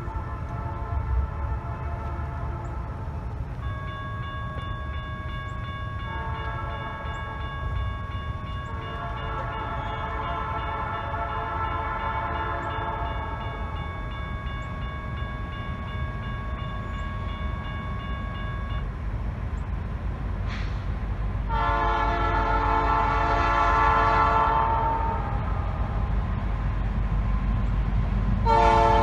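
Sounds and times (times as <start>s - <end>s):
locomotive air horn: 0.0s - 3.2s, 6.0s - 7.4s, 8.6s - 13.7s, 21.5s - 25.7s, 28.4s - 29.0s
train rumbling: 0.0s - 29.0s.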